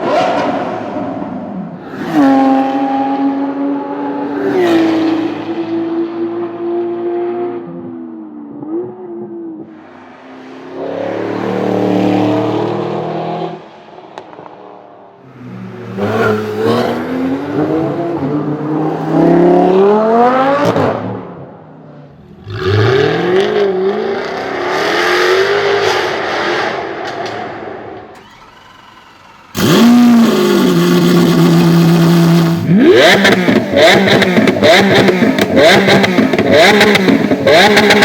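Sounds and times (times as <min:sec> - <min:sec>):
supercar engines revving: 0:08.5 - 0:14.5, 0:15.3 - 0:38.0.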